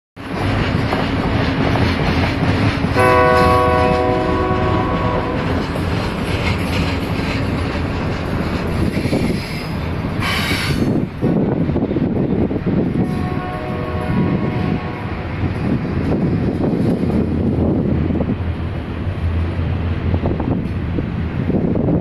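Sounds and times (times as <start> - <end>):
freight train rumbling: 0.2 - 22.0
locomotive horn: 3.0 - 5.6, 13.0 - 15.4.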